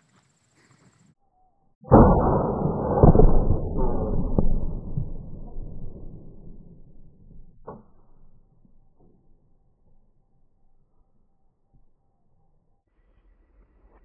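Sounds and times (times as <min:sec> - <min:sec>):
explosion blast with rumble: 0:01.9 - 0:08.7.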